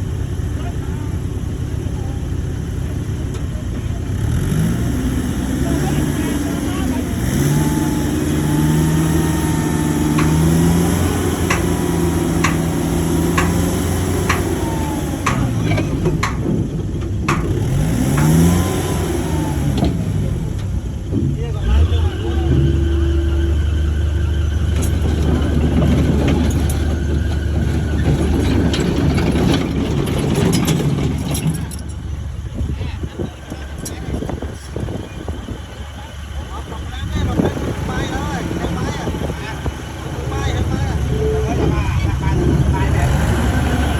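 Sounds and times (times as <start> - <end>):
bulldozer diesel engine running: 0.0 - 43.9
short knocks: 8.2 - 18.9
sharp clicks: 9.3 - 16.6.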